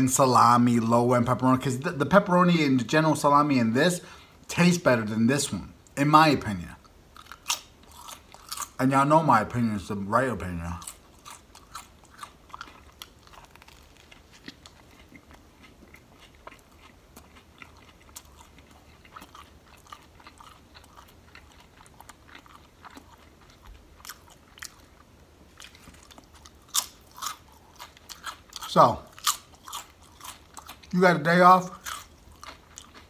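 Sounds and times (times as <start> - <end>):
chewing with wet mouth clicks: 10.8 - 31.0, 31.7 - 33.0.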